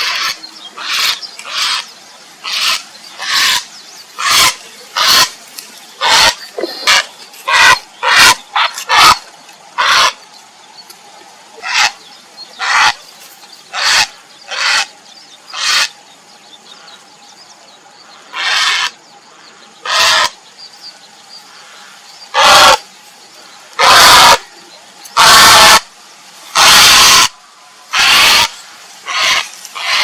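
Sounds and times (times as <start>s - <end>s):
heron harsh croaking calls: 0.0s - 5.4s, 6.0s - 9.2s, 9.8s - 10.2s, 11.6s - 12.0s, 12.6s - 13.0s, 13.7s - 14.9s, 15.5s - 16.0s, 18.2s - 19.0s, 19.8s - 20.4s, 21.6s - 22.8s, 23.8s - 24.5s, 25.2s - 25.8s, 26.5s - 30.0s.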